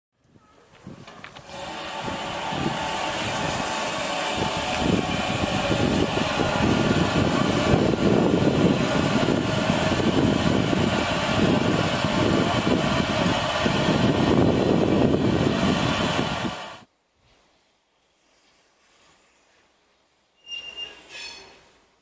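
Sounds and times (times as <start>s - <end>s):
steam locomotive hissing: 1.4s - 16.9s.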